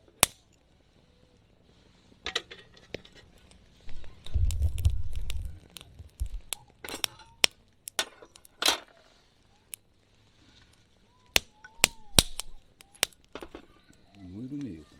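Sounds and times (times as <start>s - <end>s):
low rumble: 3.9s - 6.6s
sharp clicks and knocks: 3.9s - 9.0s.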